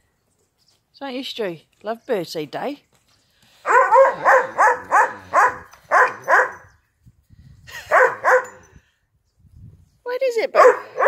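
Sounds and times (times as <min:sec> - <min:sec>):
dog barking: 0:03.7 - 0:06.6, 0:07.9 - 0:08.5, 0:10.6 - 0:11.0.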